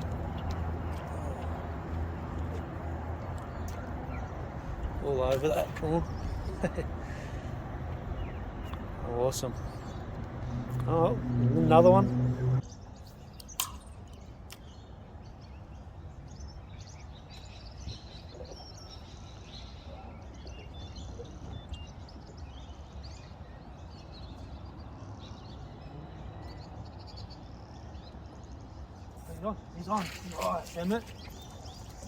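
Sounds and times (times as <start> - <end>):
steady low rumble: 0.0 - 12.8
birds chirping faintly: 0.0 - 32.0.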